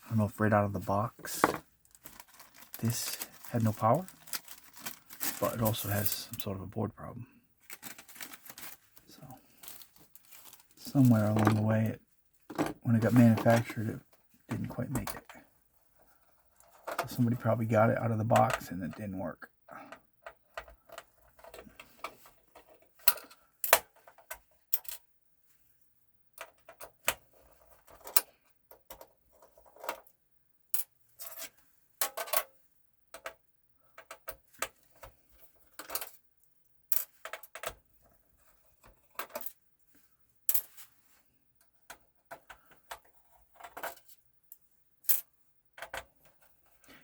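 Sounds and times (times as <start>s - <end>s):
screwdriver being handled: 11.0s - 11.6s
small parts clicking and clattering: 19.7s - 25.1s, 30.7s - 36.2s, 36.9s - 39.6s, 40.5s - 46.9s.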